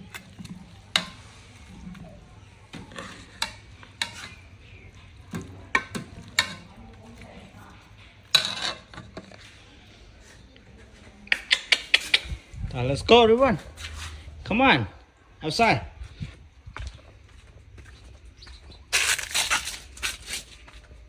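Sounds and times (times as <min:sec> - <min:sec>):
utensil scraping cookware: 0:00.0 - 0:06.8, 0:08.2 - 0:09.6.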